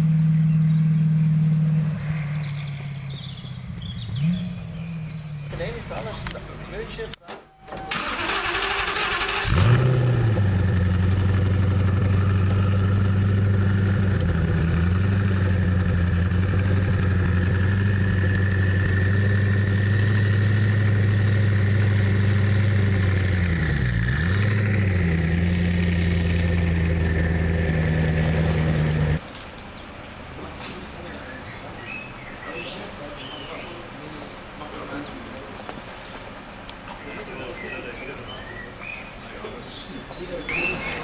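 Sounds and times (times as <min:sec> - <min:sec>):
car engine revving and idling: 0:00.0 - 0:07.0, 0:08.8 - 0:29.2
starter motor whir: 0:07.7 - 0:29.2.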